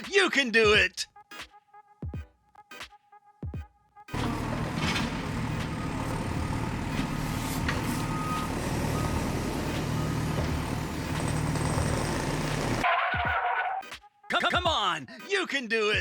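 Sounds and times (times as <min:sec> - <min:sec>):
heavy truck engine running: 0:04.1 - 0:12.8
reversing beeps: 0:04.2 - 0:12.8.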